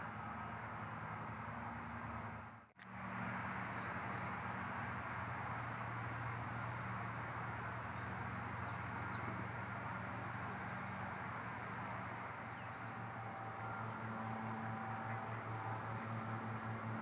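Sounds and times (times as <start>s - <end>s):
outdoor background rush: 0.0s - 17.0s.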